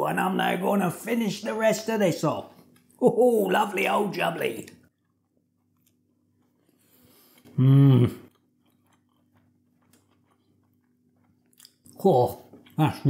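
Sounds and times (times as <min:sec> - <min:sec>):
man chewing food: 0:04.6 - 0:12.8
man humming mmm: 0:07.5 - 0:08.3.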